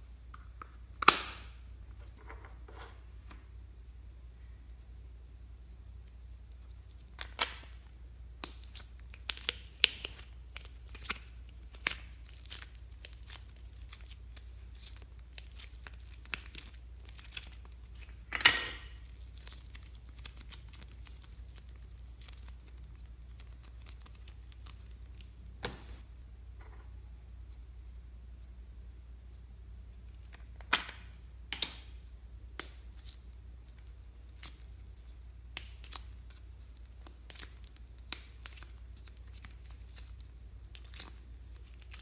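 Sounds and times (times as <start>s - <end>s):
slime crackling and popping: 6.8s - 26.0s, 32.6s - 42.0s.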